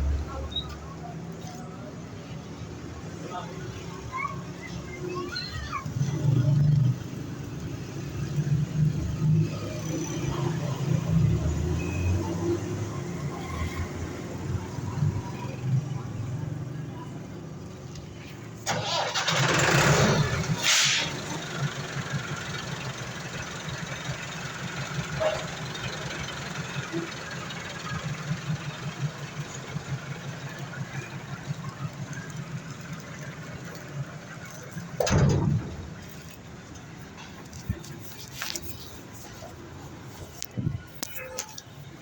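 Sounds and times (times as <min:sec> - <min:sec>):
tractor engine starting and chugging: 0:18.6 - 0:36.8
loud burst of engine noise: 0:18.7 - 0:21.6.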